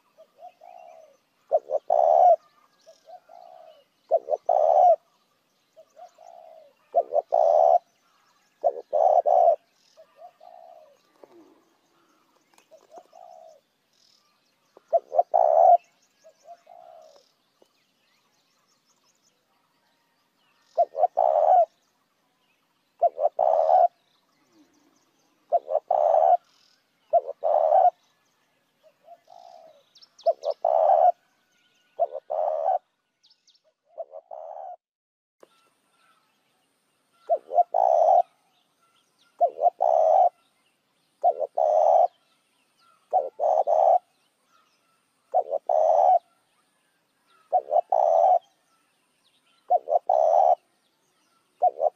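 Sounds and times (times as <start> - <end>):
dove cooing: 0.0 - 5.1, 5.8 - 7.9, 8.6 - 13.6, 14.8 - 17.3, 20.7 - 21.8, 23.0 - 28.0, 28.8 - 31.2, 32.0 - 32.9, 33.9 - 34.8, 37.2 - 38.4, 39.4 - 40.4, 41.2 - 42.2, 43.1 - 44.1, 45.3 - 46.3, 47.4 - 48.6, 49.6 - 50.6, 51.6 - 51.9.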